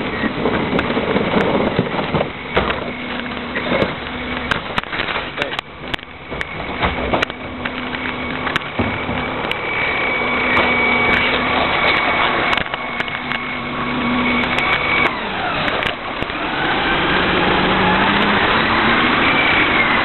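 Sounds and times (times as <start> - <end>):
garbage truck hydraulic whine: 0.0 - 20.0
metal clanks and knocks: 0.2 - 9.7.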